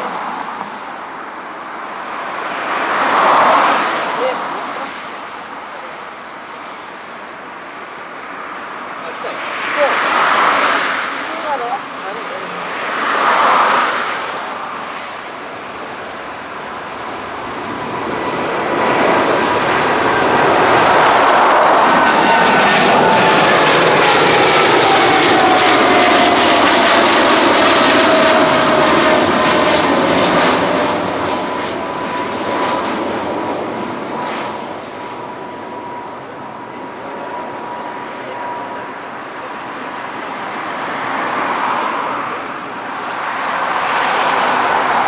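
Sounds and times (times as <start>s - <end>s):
jet engines whining: 0.0s - 45.0s.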